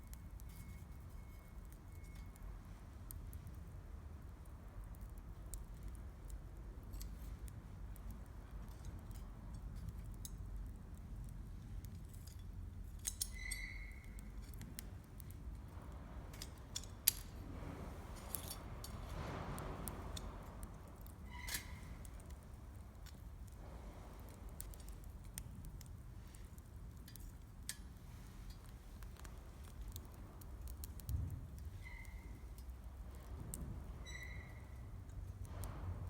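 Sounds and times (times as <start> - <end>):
campfire crackling and popping: 1.6 - 34.1
low rumble: 30.1 - 36.0.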